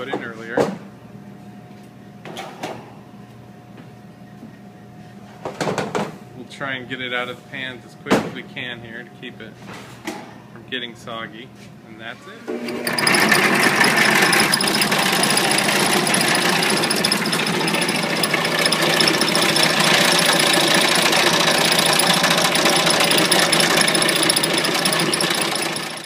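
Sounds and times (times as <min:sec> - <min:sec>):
bread slicer running: 0:12.4 - 0:26.0.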